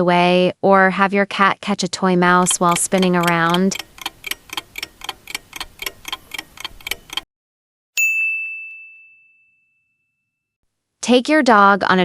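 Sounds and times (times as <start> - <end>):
clock ticking: 2.3 - 7.3
bright bell ding: 8.0 - 10.2.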